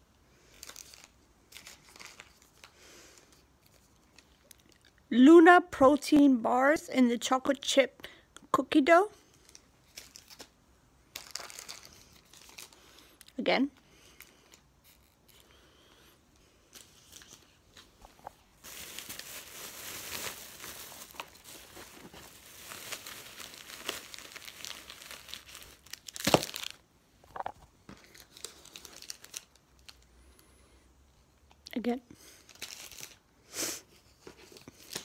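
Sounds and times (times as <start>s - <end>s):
plastic packaging crinkling: 0.5s - 2.7s, 9.4s - 13.4s, 16.7s - 30.1s, 32.4s - 33.2s.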